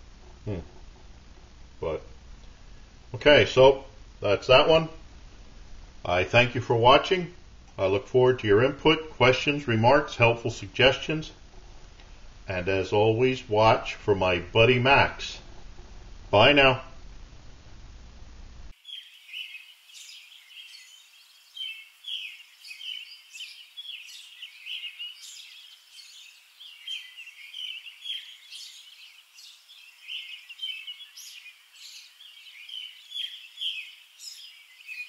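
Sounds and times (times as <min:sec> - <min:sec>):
birds chirping and singing: 0:18.8 - 0:35.0.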